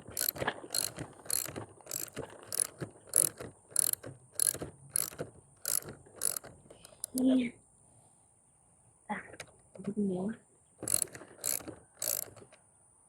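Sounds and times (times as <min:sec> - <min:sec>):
ratchet wrench clicking: 0:00.0 - 0:07.2, 0:10.8 - 0:12.5.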